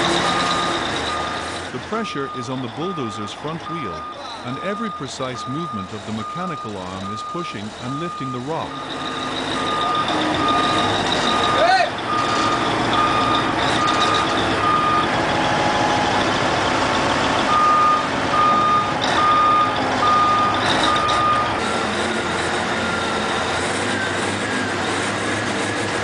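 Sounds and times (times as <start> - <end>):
back-up alarm beeping: 0.0 - 16.2, 17.5 - 21.6
large engines working: 0.0 - 26.0.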